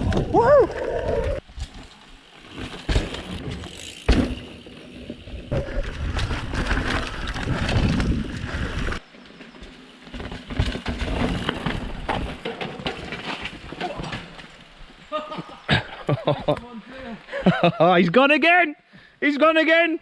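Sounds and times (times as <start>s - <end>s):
bike tyre noise on dirt: 0.0s - 18.2s
bike frame and chain rattle: 1.3s - 15.1s.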